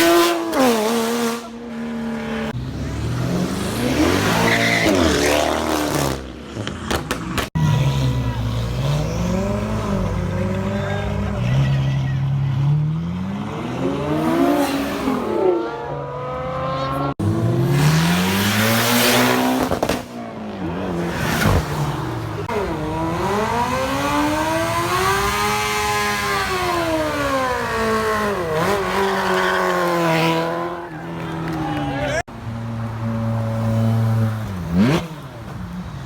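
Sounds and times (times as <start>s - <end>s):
car engines revving past: 0.0s - 36.0s.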